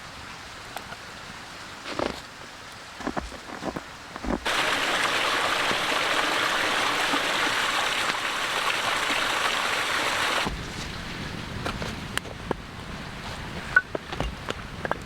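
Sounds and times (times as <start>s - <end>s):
creek water running: 0.4s - 11.3s.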